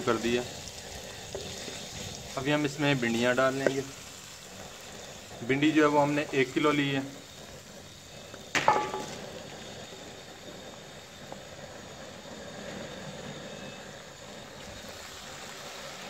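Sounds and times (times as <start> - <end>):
sizzling in hot oil: 0.0 - 16.0
metal clank with ring: 8.6 - 9.2.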